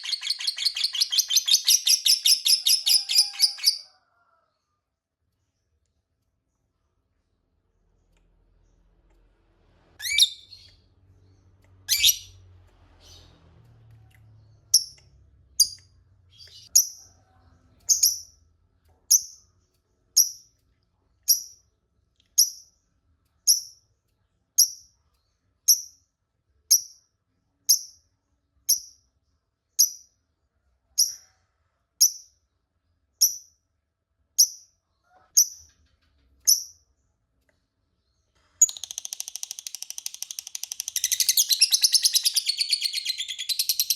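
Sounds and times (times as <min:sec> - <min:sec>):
lovebird chirping: 0:00.0 - 0:03.9, 0:10.0 - 0:13.4, 0:14.5 - 0:17.0, 0:38.6 - 0:43.9.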